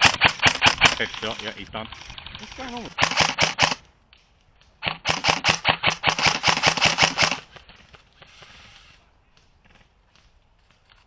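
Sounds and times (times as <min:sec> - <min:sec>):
airsoft rifle rapid fire: 0:00.0 - 0:03.8, 0:04.8 - 0:09.0.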